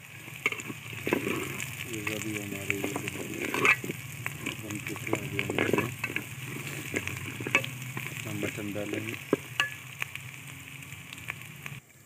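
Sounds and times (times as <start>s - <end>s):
paste sizzling in a pot: 0.0s - 12.0s
spoon stirring and clicking on pot: 0.3s - 8.2s, 9.2s - 9.9s.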